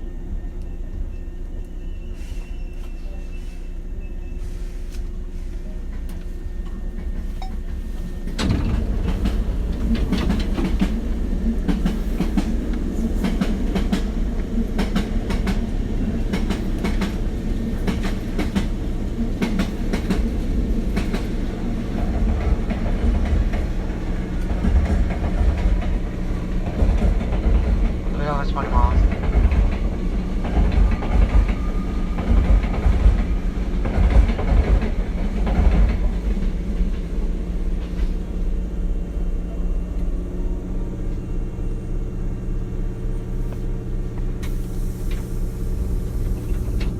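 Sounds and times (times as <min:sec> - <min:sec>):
train car low rumble: 0:00.0 - 0:46.9
wheels clacking over rail joints: 0:08.3 - 0:37.1.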